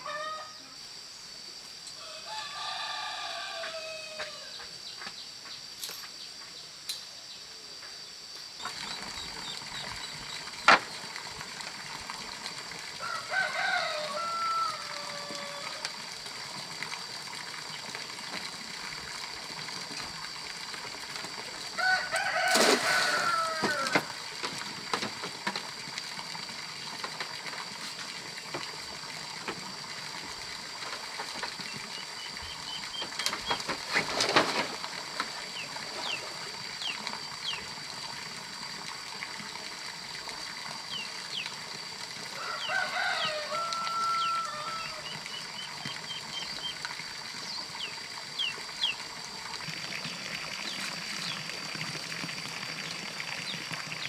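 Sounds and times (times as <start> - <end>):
rooster crowing: 0.0 - 0.6, 2.0 - 4.6, 13.0 - 15.9, 21.8 - 24.2, 42.3 - 45.4
fowl call: 0.0 - 0.8, 13.0 - 15.9, 21.8 - 24.2, 42.4 - 46.8
high insect whine: 0.0 - 54.0.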